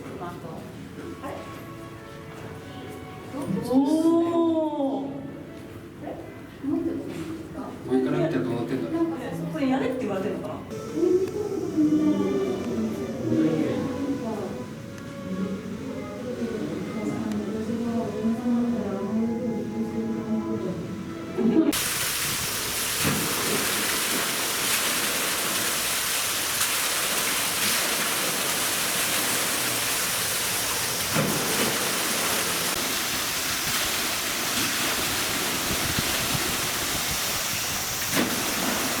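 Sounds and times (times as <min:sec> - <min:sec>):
falling water rushing: 0:21.8 - 0:39.0.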